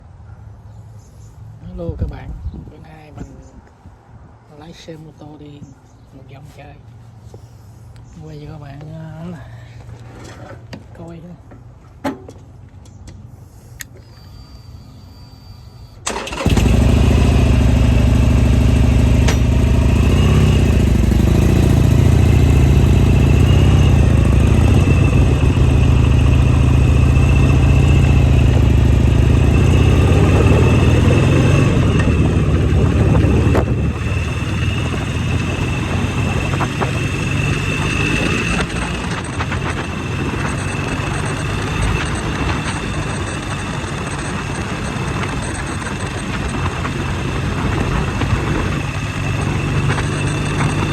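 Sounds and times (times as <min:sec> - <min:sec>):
motorcycle engine running: 0:16.1 - 0:50.9.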